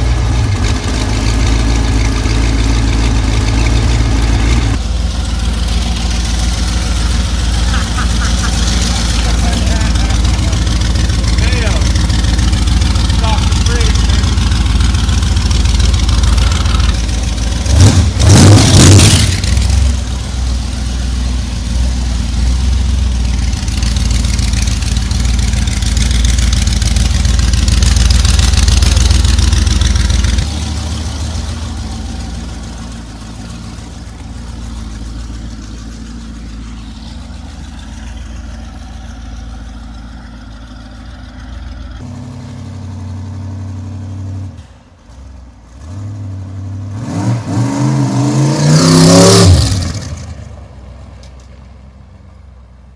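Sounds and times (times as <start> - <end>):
trike engine running and revving: 0.0 - 44.6, 45.8 - 50.6.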